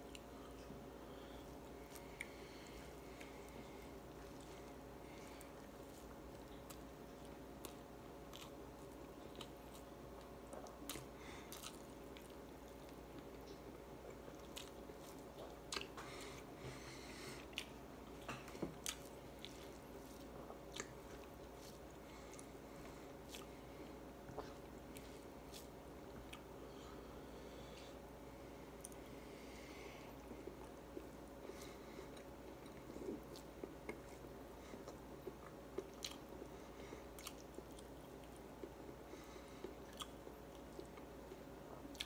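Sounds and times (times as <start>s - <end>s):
faint steady hum: 0.0s - 42.0s
chewing with wet mouth smacks: 1.8s - 16.2s, 17.4s - 26.5s, 32.1s - 42.0s.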